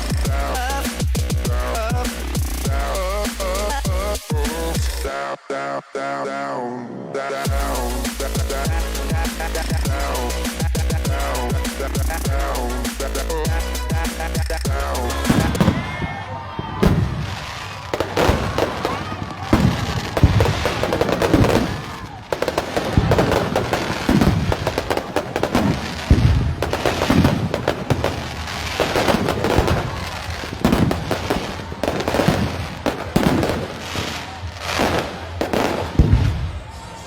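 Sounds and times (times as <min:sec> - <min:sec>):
music: 0:00.0 - 0:37.0
voices: 0:00.0 - 0:37.0
fireworks booming and crackling: 0:07.5 - 0:37.0.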